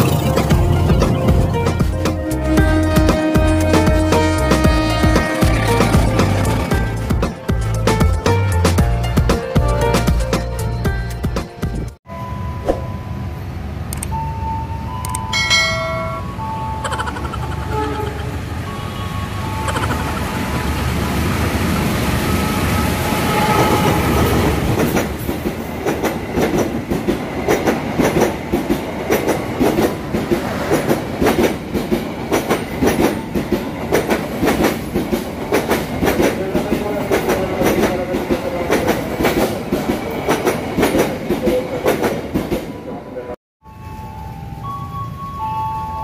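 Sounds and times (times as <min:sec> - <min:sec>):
train low rumble: 0:12.7 - 0:45.5
train wheels clacking over rail joints: 0:24.7 - 0:42.6.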